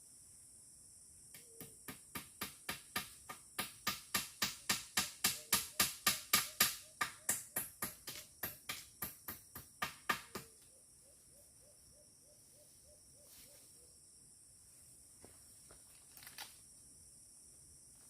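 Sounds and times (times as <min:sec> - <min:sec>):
high insect chorus: 0:00.0 - 0:18.0
rapid sharp knocks: 0:01.6 - 0:10.5.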